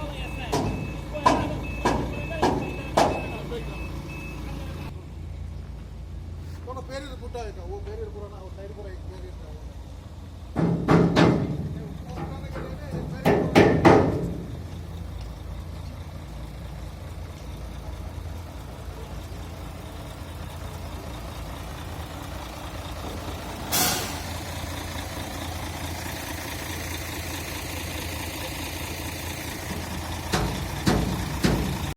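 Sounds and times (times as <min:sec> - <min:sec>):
heavy diesel engine idling: 0:00.0 - 0:31.9
air brake hiss: 0:23.7 - 0:24.4.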